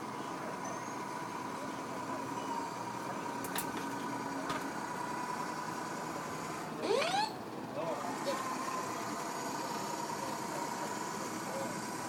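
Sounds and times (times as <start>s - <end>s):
constant high tone: 0.0s - 3.3s, 6.8s - 7.4s
boat engine running: 0.0s - 12.0s.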